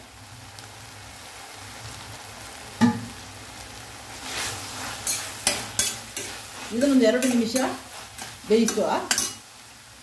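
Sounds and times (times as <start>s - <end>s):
masala sizzling in a pan: 0.0s - 10.0s
spoon scraping a pan: 4.2s - 9.5s.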